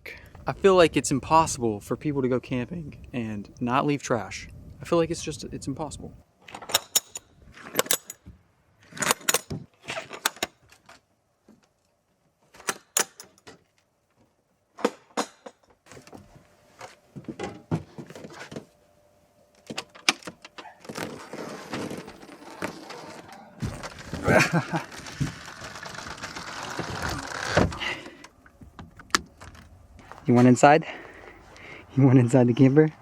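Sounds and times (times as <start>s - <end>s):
light clinking and rattling: 6.5s - 8.3s, 12.7s - 13.6s.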